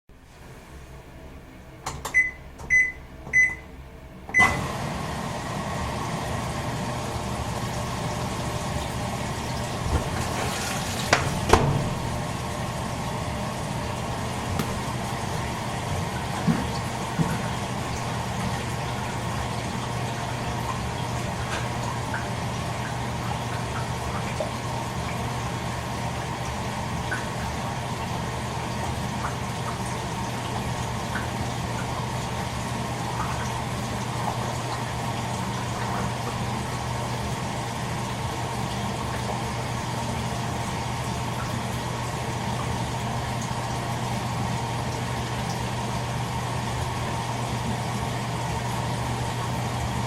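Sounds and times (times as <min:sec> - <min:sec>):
washing machine humming: 0:00.1 - 0:50.0
washing machine control beeps: 0:01.8 - 0:04.8
water filling tub: 0:04.3 - 0:50.0
washing machine knocks: 0:09.7 - 0:12.4, 0:14.3 - 0:15.0, 0:15.8 - 0:17.6.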